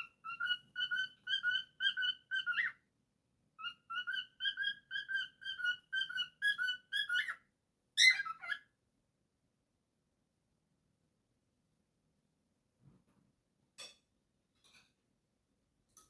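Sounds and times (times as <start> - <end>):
cockatiel whistling: 0.0 - 2.7, 3.6 - 7.4, 8.0 - 8.6.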